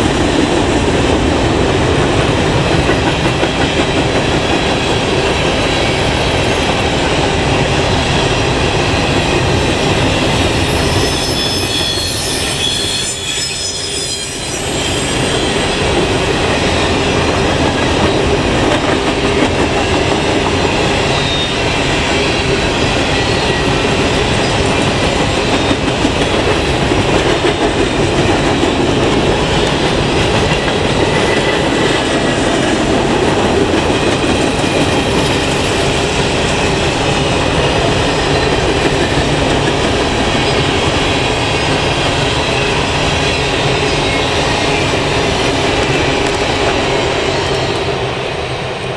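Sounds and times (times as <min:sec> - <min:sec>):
train wheels rumbling on rails: 0:00.0 - 0:48.9
high wheel squeals: 0:08.2 - 0:17.2, 0:20.9 - 0:25.9.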